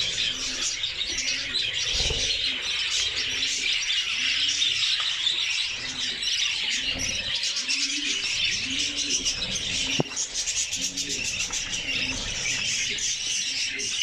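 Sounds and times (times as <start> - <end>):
budgerigars chattering: 0.0 - 14.0
low cooing call: 5.8 - 14.0.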